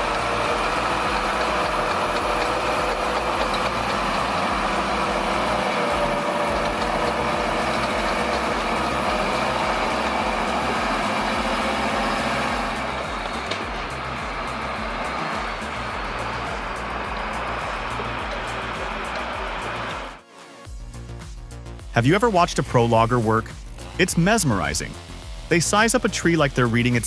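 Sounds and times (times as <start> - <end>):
heavy vehicle engine running: 0.0 - 20.2
mechanical whine: 0.0 - 20.2, 22.8 - 27.0.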